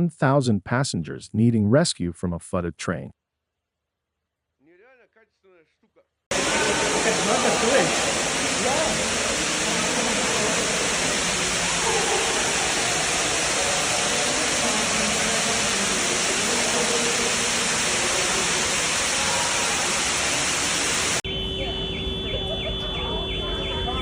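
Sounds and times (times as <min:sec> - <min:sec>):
floodwater rushing: 0:06.3 - 0:21.2.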